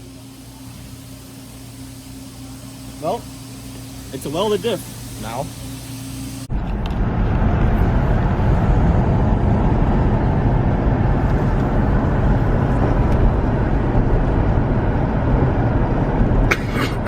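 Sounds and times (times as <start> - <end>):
car road and engine rumble: 6.4 - 17.0.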